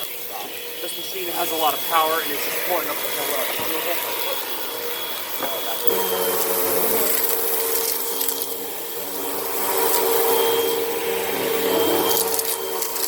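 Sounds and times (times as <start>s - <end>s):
vacuum cleaner motor: 0.0s - 13.0s.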